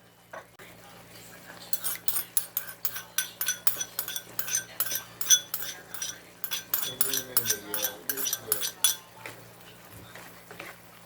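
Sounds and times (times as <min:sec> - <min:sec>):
metal utensil clinking on dish: 0:01.7 - 0:09.1.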